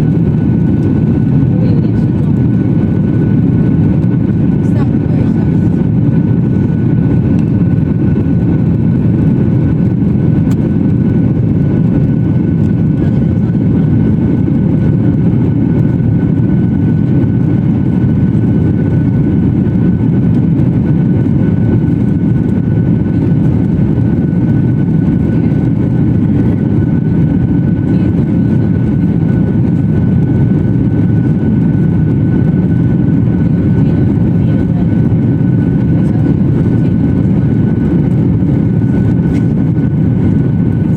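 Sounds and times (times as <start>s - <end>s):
airliner engine deep rumble: 0.0s - 40.9s
constant high whine: 0.0s - 40.9s.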